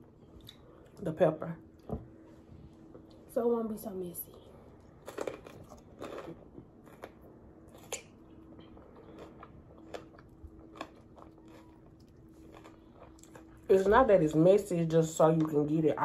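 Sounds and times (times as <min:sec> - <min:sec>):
crunchy chewing: 0:04.8 - 0:13.7.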